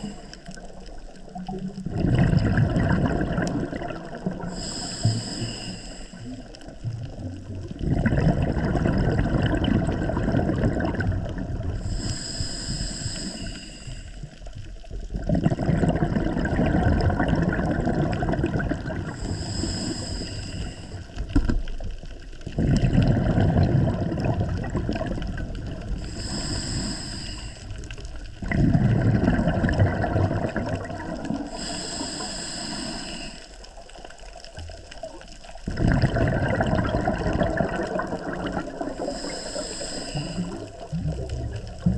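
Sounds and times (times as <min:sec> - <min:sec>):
regulator inhale hiss: 0:00.0 - 0:01.0, 0:04.3 - 0:06.8, 0:11.8 - 0:14.6, 0:19.1 - 0:21.5, 0:25.8 - 0:28.4, 0:31.4 - 0:34.3, 0:38.8 - 0:41.0
exhaled bubbles rushing: 0:00.0 - 0:04.6, 0:06.2 - 0:11.9, 0:14.9 - 0:20.0, 0:20.6 - 0:26.9, 0:27.6 - 0:31.8, 0:33.7 - 0:39.6, 0:40.2 - 0:41.9.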